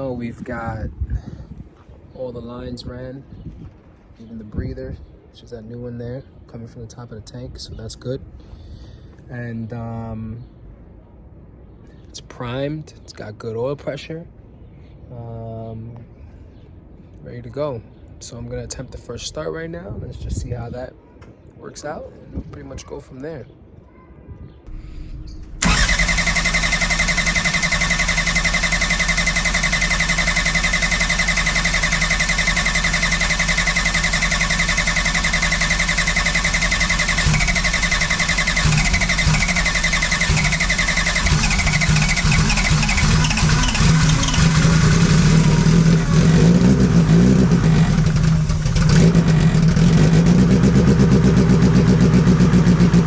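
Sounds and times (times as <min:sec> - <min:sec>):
engine firing and running: 0:24.7 - 0:53.0
starter motor cranking: 0:25.5 - 0:53.0.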